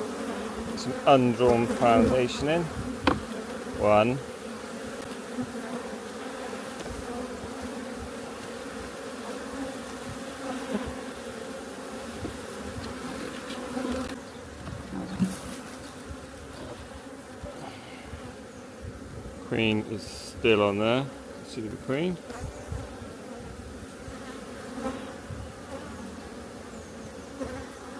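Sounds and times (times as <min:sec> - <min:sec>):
bees buzzing: 0:00.0 - 0:27.9.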